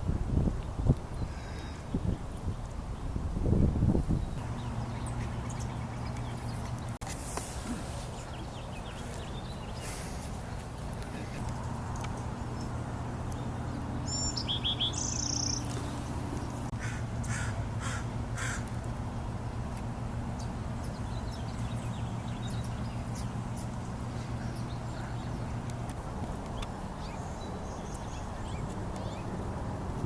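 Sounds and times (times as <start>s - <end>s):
steady low hum: 0.0s - 30.0s
bird chirping: 4.1s - 7.0s, 11.4s - 17.6s, 20.3s - 29.4s
harsh bird calls: 11.2s - 18.7s.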